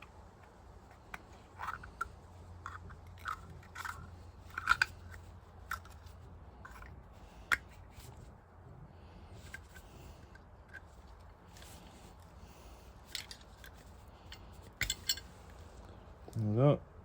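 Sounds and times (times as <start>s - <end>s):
light metal clicks and scrapes: 0.0s - 8.3s, 9.3s - 16.4s
low steady hum: 0.0s - 17.0s.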